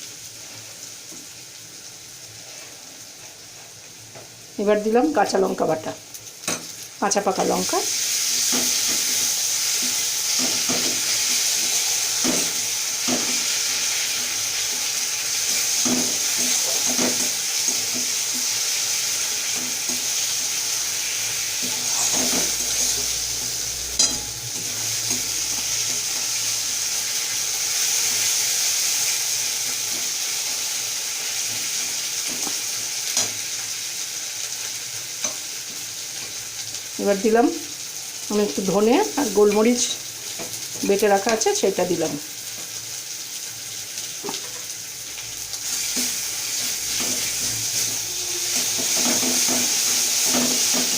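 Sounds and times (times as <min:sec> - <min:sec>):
onions sizzling in hot oil: 0:00.0 - 0:50.9
spatula scraping a pan: 0:21.5 - 0:26.4, 0:45.6 - 0:50.9.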